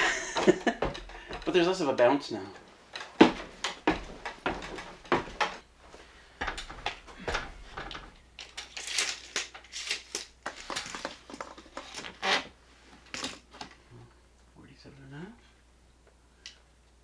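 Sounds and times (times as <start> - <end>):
objects knocking and clicking: 6.4 - 12.1
rustling: 7.5 - 13.8.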